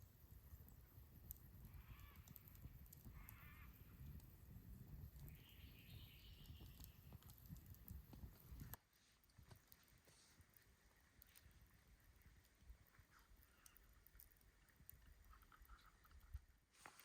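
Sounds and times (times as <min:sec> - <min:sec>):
faint bird calls: 0:01.6 - 0:04.2.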